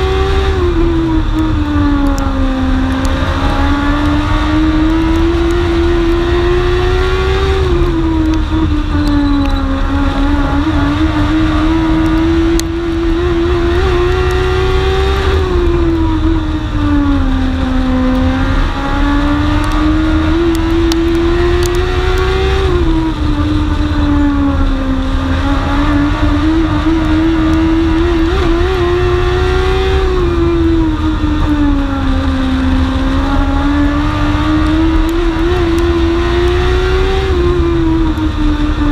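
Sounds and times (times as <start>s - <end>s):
race car engine accelerating: 0.0s - 38.9s.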